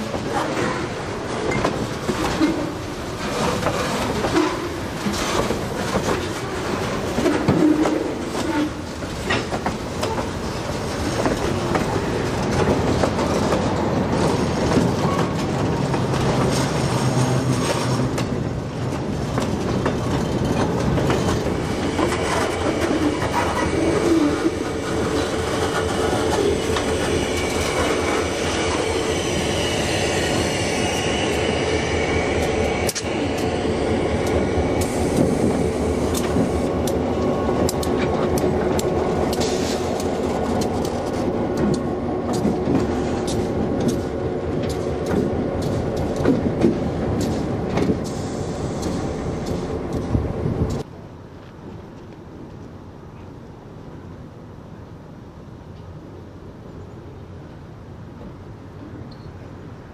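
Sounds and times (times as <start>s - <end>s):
train wheels clattering: 0.0s - 50.9s
high wheel squeal: 21.6s - 35.6s.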